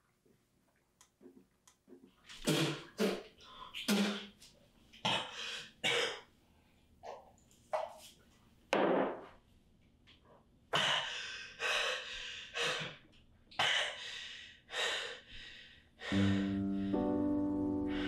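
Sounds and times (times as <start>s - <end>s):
person breathing hard: 5.2s - 5.8s, 10.7s - 13.0s, 13.6s - 17.1s
soft piano music: 16.1s - 18.0s.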